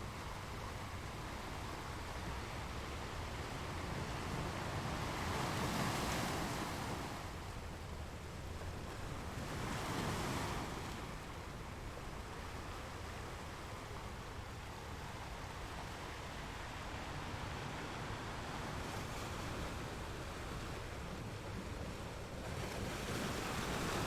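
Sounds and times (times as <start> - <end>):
sea waves breaking on shore: 3.5 - 7.5, 14.6 - 24.0.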